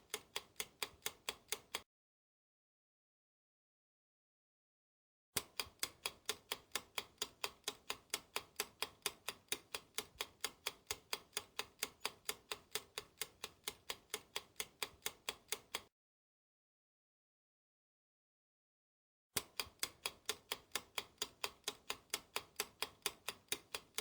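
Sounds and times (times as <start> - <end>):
clock ticking: 0.0 - 1.8, 5.4 - 15.9, 19.4 - 24.0.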